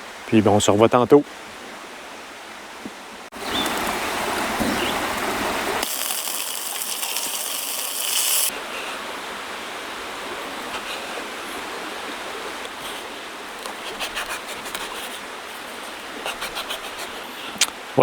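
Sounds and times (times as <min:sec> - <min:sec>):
food sizzling in a pan: 0:05.8 - 0:08.5
high hiss: 0:05.8 - 0:08.5.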